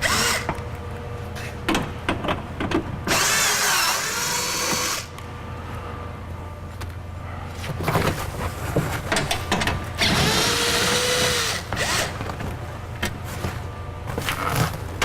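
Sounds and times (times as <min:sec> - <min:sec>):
power drill whirring: 0:00.0 - 0:00.5, 0:03.1 - 0:05.1, 0:10.0 - 0:12.2
clicks and knocks of hardware: 0:09.1 - 0:09.8.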